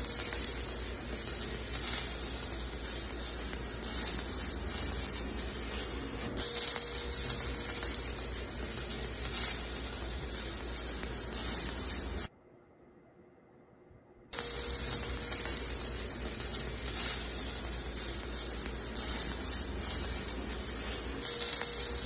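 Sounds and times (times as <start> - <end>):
welding arc crackling hiss: 0.0 - 12.3, 14.3 - 22.0.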